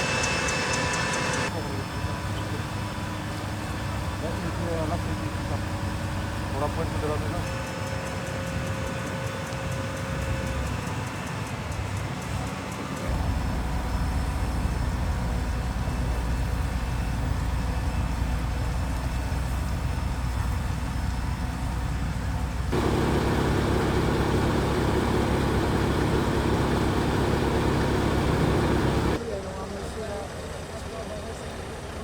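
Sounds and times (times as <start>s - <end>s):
vehicle engine rumbling: 22.3s - 29.2s.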